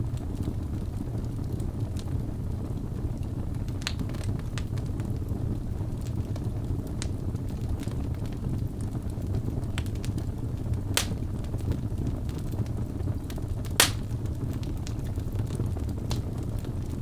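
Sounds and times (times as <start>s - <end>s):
fire rumbling in fireplace: 0.0s - 17.0s
small fire crackles: 0.0s - 17.0s
sharp pops from burning logs: 9.7s - 10.3s, 10.9s - 11.7s, 13.2s - 15.2s.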